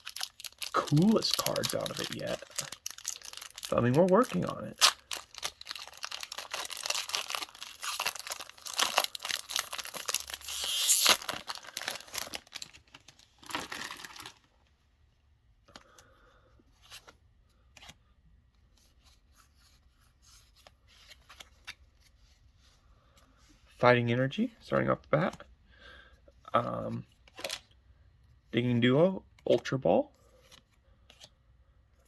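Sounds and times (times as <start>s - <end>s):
foil wrapper tearing and crinkling: 0.0s - 14.4s.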